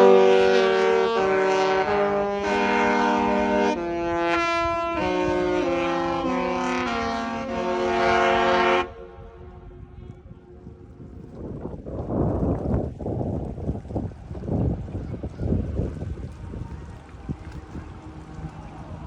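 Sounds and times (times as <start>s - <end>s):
musical ship's horn chords: 0.0s - 9.8s
faint wind noise: 0.0s - 19.0s.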